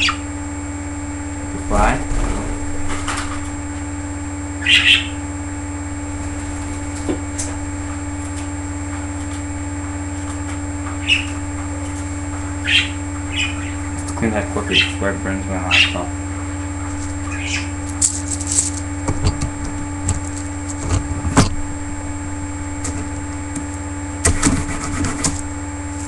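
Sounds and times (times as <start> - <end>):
budgerigar chirps: 0.0 - 0.3, 4.6 - 5.2, 11.0 - 11.4, 12.6 - 13.9, 14.7 - 15.0, 15.7 - 16.1, 17.2 - 17.8
steady electrical hum: 0.0 - 26.0.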